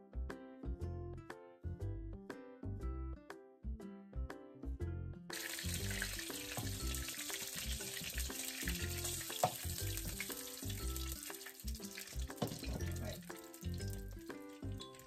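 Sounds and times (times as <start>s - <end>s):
background music with bass line: 0.0s - 15.0s
meat sizzling in a pan: 5.3s - 15.0s.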